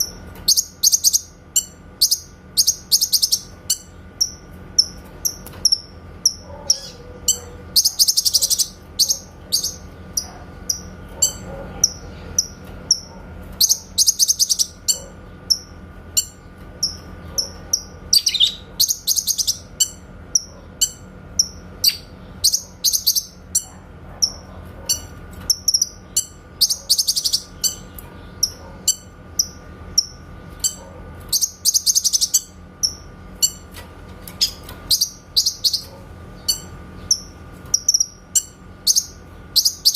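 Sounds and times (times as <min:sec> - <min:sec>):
faint steady hum: 0:00.0 - 0:39.9
songbird calling sharp notes: 0:13.6 - 0:23.4.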